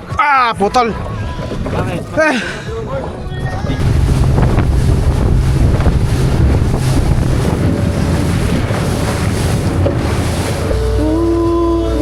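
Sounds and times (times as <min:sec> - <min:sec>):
wind buffeting microphone: 0:01.0 - 0:12.0
sea waves washing: 0:03.8 - 0:12.0.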